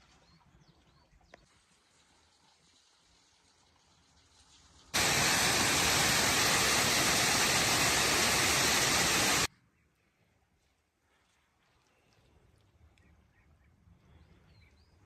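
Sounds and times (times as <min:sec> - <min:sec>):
loud steady rushing noise: 0:05.0 - 0:09.5.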